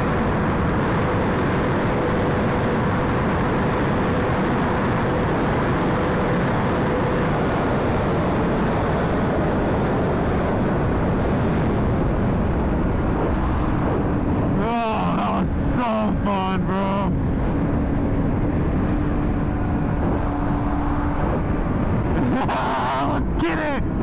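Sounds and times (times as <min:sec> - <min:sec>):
wind rush: 0:00.0 - 0:24.0
motorcycle engine cruising: 0:16.6 - 0:22.6.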